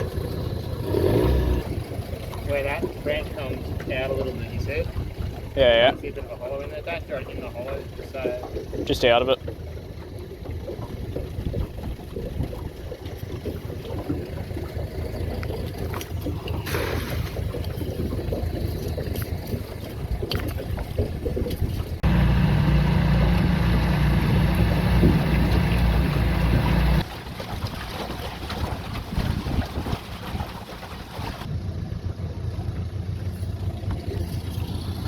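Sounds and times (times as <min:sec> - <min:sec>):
outboard motor running: 0:00.0 - 0:35.0
loud low rumble: 0:22.0 - 0:27.0
wind on microphone: 0:28.5 - 0:30.7.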